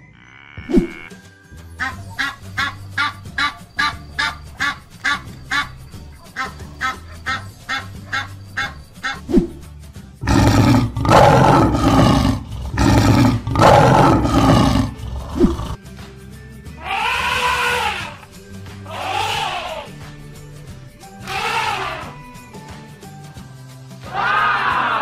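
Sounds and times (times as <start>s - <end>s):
background music: 0.0s - 25.0s
goose honking: 1.8s - 9.2s
lion roaring: 10.2s - 15.8s.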